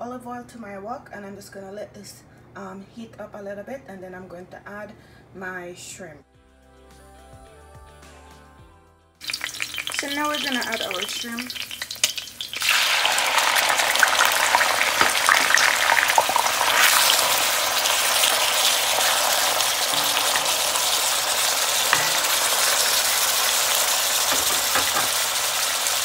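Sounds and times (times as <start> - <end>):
shrimp sizzling in hot oil: 9.2 - 26.0.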